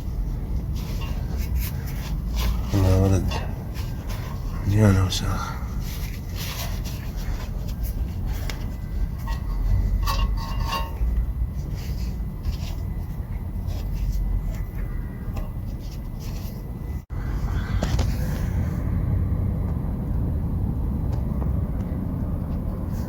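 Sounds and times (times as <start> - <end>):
scrubbing and scraping metal part: 0.0 - 17.0
steady low rumble: 0.0 - 23.0.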